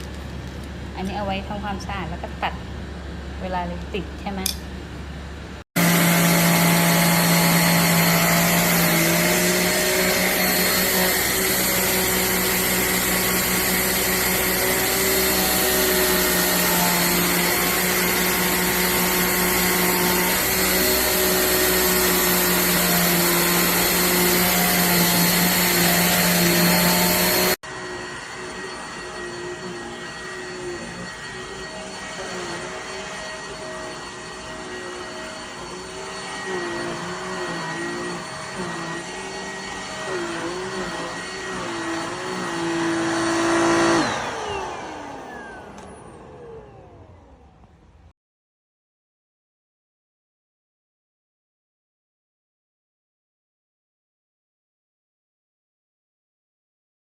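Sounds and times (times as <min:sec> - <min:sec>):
handheld vacuum motor hum: 0:05.8 - 0:47.5.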